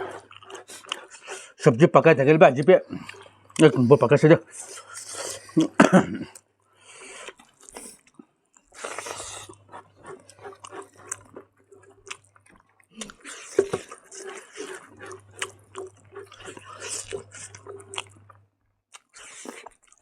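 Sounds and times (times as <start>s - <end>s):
person chewing food: 0.0s - 1.6s, 2.6s - 20.0s
low steady hum: 14.2s - 18.5s.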